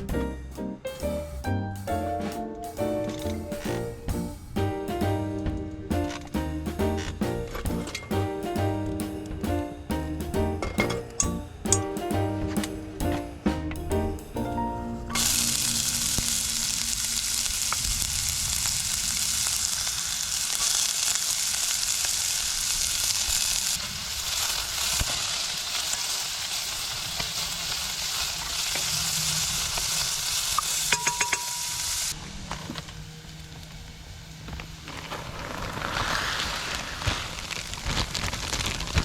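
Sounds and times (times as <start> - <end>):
food sizzling in oil: 15.1 - 32.2.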